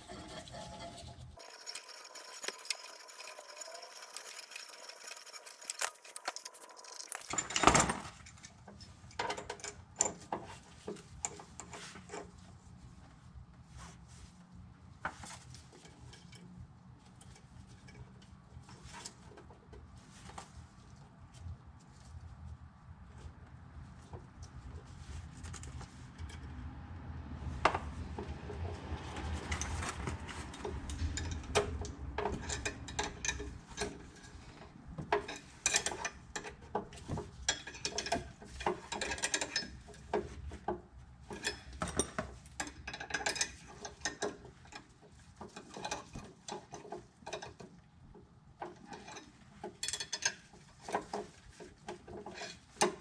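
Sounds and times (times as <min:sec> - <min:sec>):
hand tools clicking and scraping metal: 0:00.0 - 0:10.4, 0:29.1 - 0:40.6, 0:41.2 - 0:47.8.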